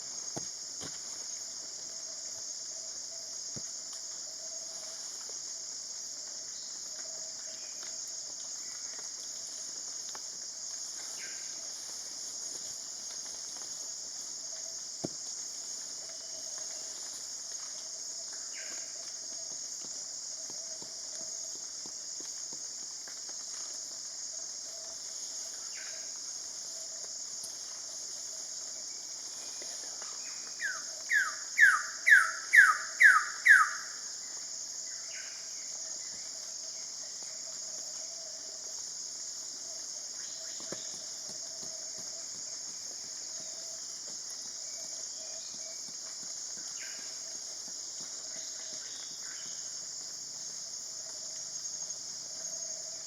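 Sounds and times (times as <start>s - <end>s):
high insect drone: 23.4s - 53.0s.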